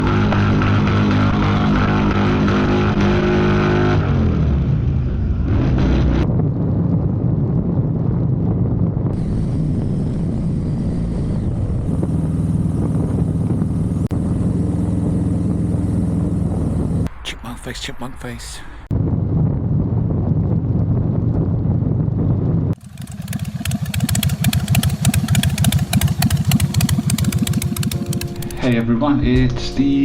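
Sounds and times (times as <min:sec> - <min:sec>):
motorcycle engine running: 0:09.2 - 0:17.1, 0:20.6 - 0:28.8.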